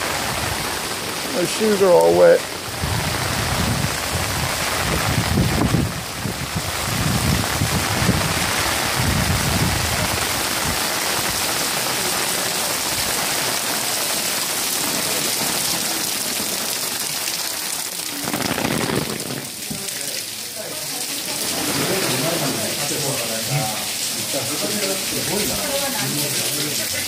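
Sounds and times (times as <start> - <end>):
heavy rain on pavement: 0.0 - 27.0.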